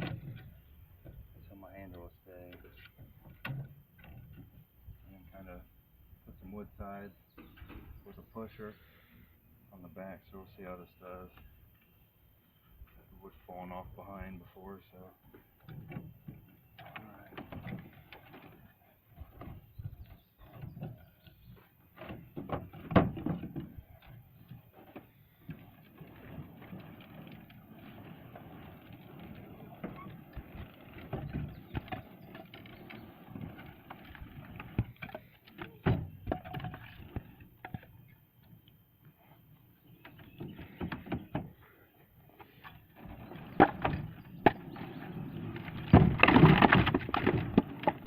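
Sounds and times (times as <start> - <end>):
firewood clunking in truck bed: 15.4 - 37.9, 42.5 - 48.0.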